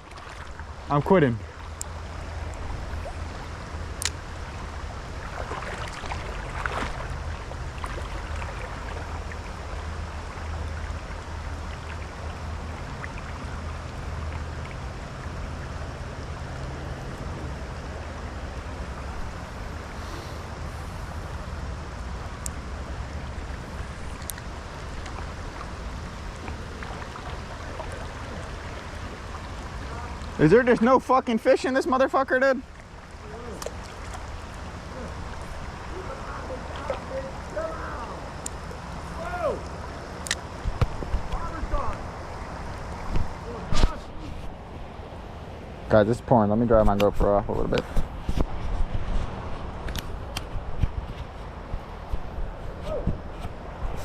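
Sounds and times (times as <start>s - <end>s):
creek water flowing: 0.0s - 54.0s
rain falling: 21.2s - 43.9s.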